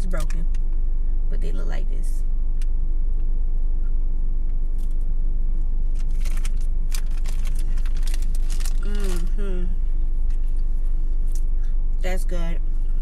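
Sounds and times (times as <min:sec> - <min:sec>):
car engine idling: 0:00.0 - 0:13.0
cookie crunching being chewed: 0:06.0 - 0:09.1.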